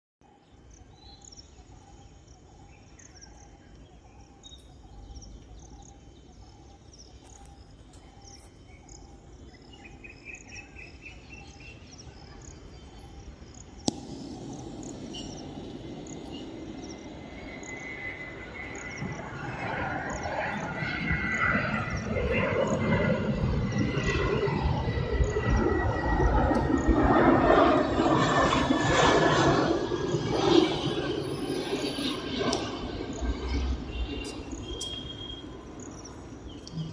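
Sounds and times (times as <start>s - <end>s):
small birds chirping: 0.3s - 24.0s, 33.2s - 36.9s
insects trilling: 0.3s - 36.9s.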